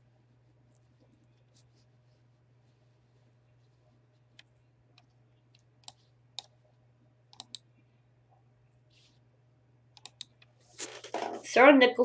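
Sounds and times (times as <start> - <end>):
faint low hum: 0.0 - 12.0
computer mouse and keyboard clicks: 7.3 - 7.6, 10.0 - 10.5.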